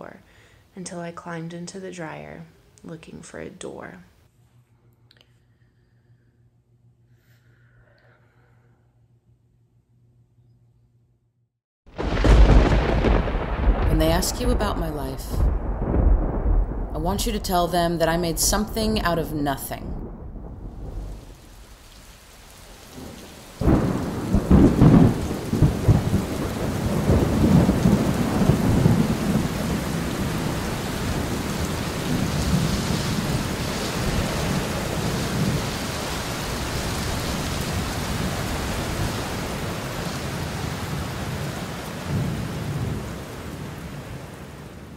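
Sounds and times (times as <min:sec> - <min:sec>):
steady rain: 0:11.9 - 0:19.1, 0:20.2 - 0:44.9
thunderclap rumbling: 0:11.9 - 0:44.9.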